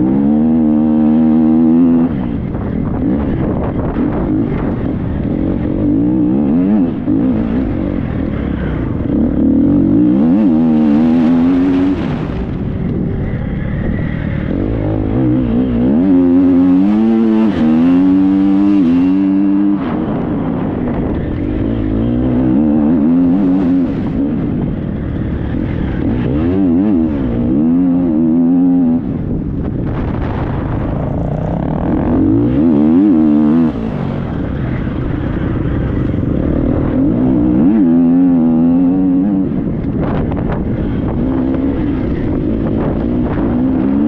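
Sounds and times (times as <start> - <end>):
dirt bike engine revving: 0.0 - 44.0
wind rushing on microphone: 0.0 - 44.0.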